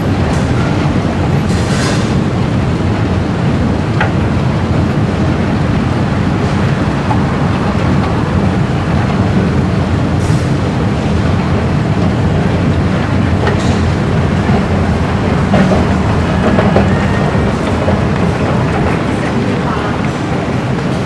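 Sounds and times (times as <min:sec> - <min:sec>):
electric train rumbling: 0:00.0 - 0:21.0.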